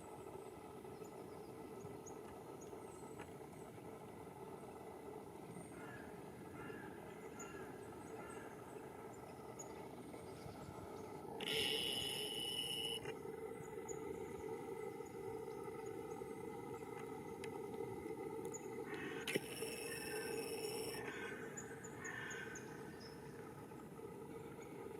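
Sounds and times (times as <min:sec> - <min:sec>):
faint bird chirps: 0:05.6 - 0:17.4, 0:18.5 - 0:23.3
harsh high-pitched call: 0:11.4 - 0:13.0.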